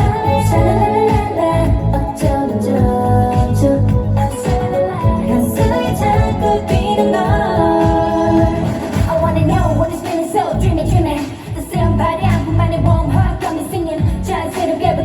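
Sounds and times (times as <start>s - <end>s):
female vocals singing: 0.0s - 15.0s
pop backing track with beat: 0.0s - 15.0s.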